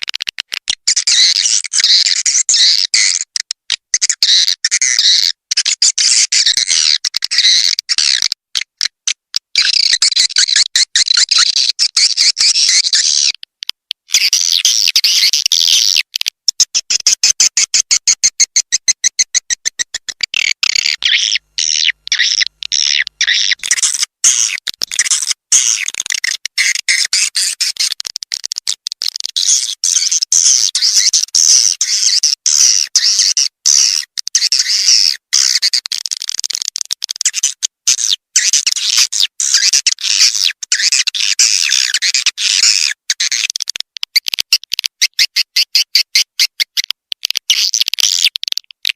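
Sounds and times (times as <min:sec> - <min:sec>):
swiftlet chirping and twittering: 0:16.7 - 0:27.9.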